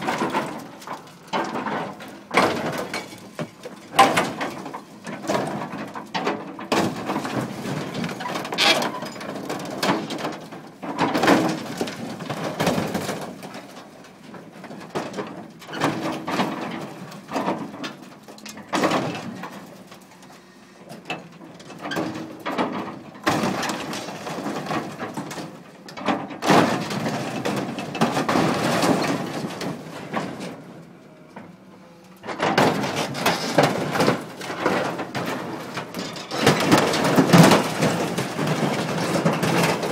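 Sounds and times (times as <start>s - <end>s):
sheet metal being crushed: 22.0s - 30.7s, 32.2s - 39.9s.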